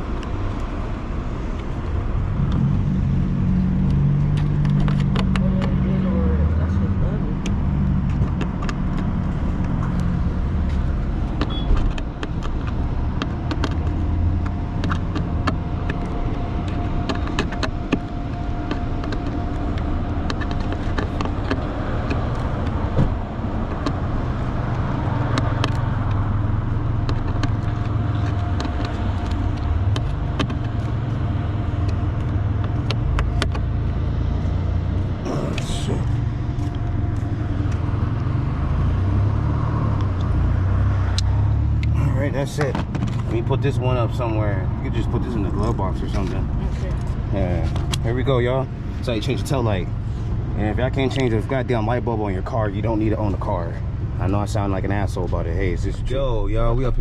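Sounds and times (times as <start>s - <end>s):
truck engine rumbling: 0.0s - 57.0s
sharp clicks and knocks: 3.8s - 5.8s, 11.2s - 24.1s, 27.0s - 31.1s, 31.8s - 34.0s.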